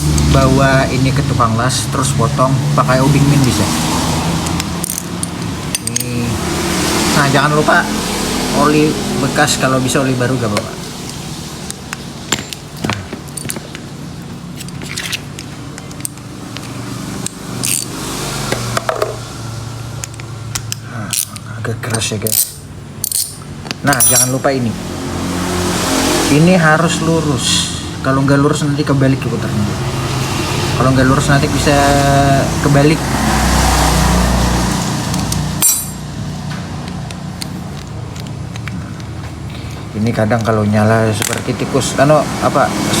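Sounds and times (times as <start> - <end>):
wrench clicking and scraping metal: 4.4 - 6.2, 14.5 - 18.0, 20.0 - 24.4
metallic clink ringing: 12.3 - 13.7, 22.3 - 24.5, 35.6 - 36.1.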